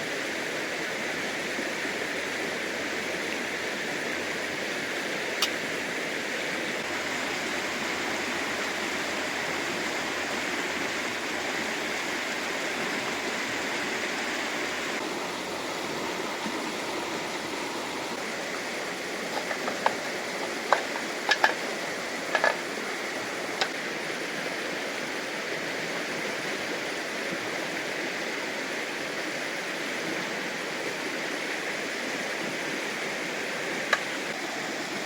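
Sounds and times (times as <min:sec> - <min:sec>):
river water rushing: 0:00.0 - 0:35.0.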